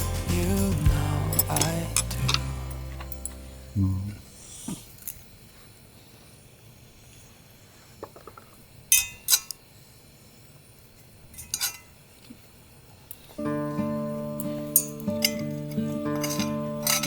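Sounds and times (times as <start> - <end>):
guitar music: 0.0 - 4.6, 13.4 - 17.0
cutlery clinking against dish: 11.4 - 11.9, 14.8 - 17.0.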